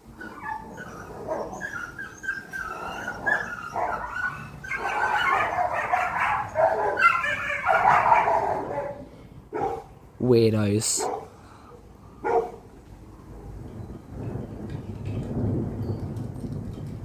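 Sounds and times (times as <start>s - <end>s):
dogs barking: 0.1s - 10.0s, 11.0s - 11.4s, 12.2s - 12.7s.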